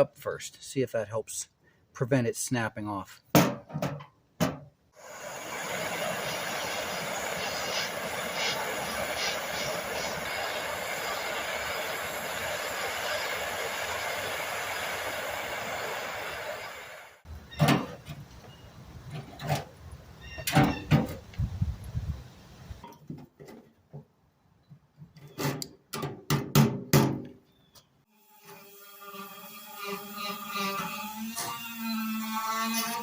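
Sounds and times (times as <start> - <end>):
torch hissing: 5.0 - 22.8.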